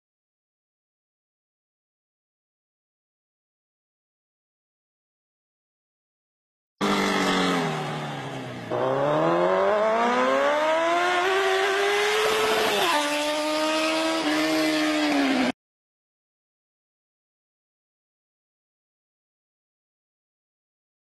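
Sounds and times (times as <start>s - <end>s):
racing car engine revving: 6.8s - 15.5s.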